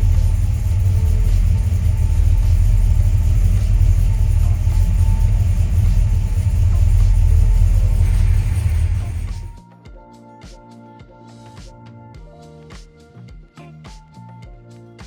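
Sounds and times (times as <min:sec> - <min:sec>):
car engine idling: 0:00.0 - 0:09.6.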